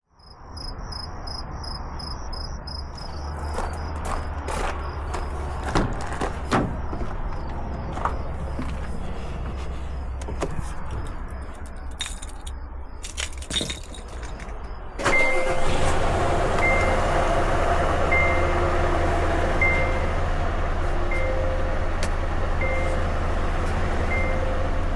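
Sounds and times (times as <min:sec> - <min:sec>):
diesel truck engine idling: 0:03.1 - 0:12.0, 0:14.9 - 0:24.9.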